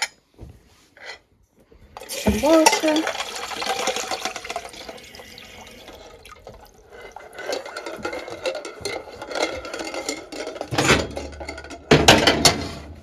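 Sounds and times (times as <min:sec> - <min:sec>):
water pouring into a saucepan: 0:02.0 - 0:08.8
metal lids clinking: 0:02.0 - 0:13.0.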